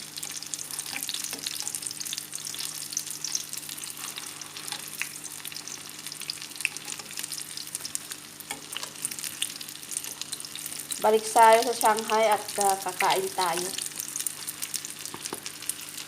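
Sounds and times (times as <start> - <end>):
food frying in hot oil: 0.0 - 16.0.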